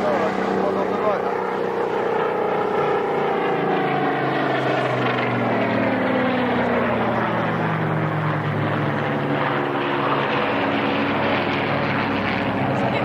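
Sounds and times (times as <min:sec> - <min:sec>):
propeller aircraft flying past: 0:00.0 - 0:13.0.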